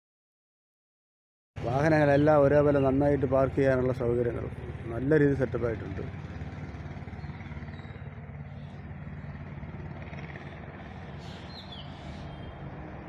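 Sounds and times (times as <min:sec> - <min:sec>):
low outdoor rumble: 0:01.6 - 0:13.0
faint bird chirps: 0:10.9 - 0:12.6.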